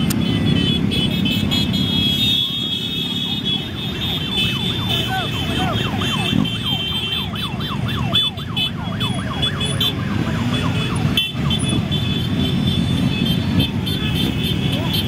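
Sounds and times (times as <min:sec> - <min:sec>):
motorcycle engines running: 0:00.0 - 0:15.0
siren yelping: 0:03.0 - 0:11.4.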